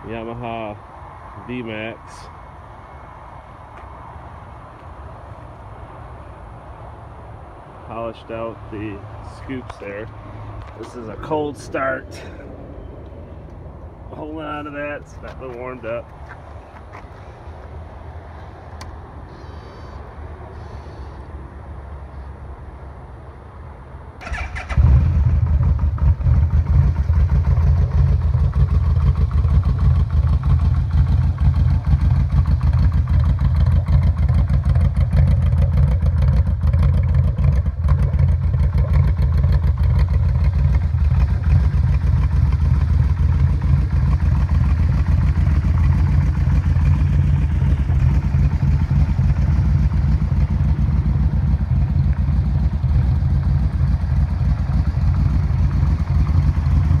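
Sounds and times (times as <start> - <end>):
motorcycle engine starting and idling: 24.2 - 57.0.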